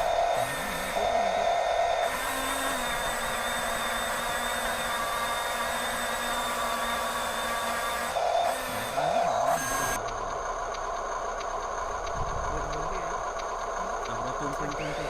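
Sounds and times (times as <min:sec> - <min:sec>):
small electric motors whirring: 0:00.0 - 0:15.0
reversing beep: 0:09.1 - 0:10.0, 0:14.6 - 0:15.0.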